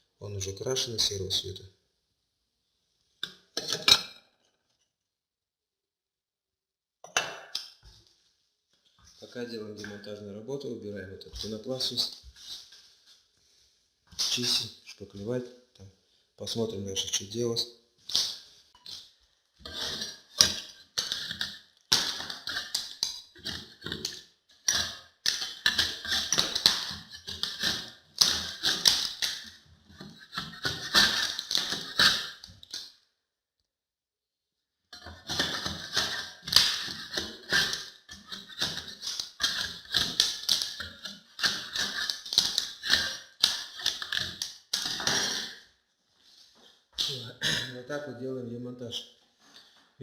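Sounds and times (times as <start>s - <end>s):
hand scraper scraping wall: 19.6s - 32.7s, 35.0s - 45.6s.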